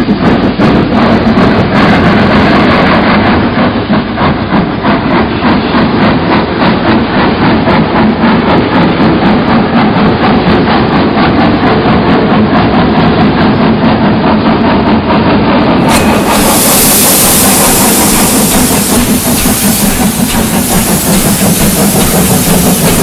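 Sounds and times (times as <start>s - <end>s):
train wheels clattering over joints: 0.0s - 23.0s.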